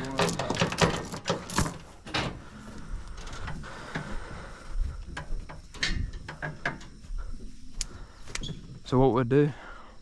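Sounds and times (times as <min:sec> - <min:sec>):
metal chain clanking: 0:00.0 - 0:02.4, 0:05.4 - 0:07.0.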